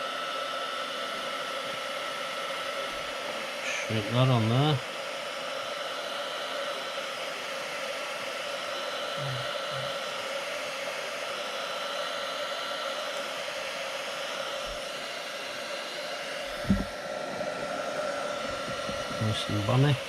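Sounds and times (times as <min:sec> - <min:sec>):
heat gun blowing: 0:00.0 - 0:20.0.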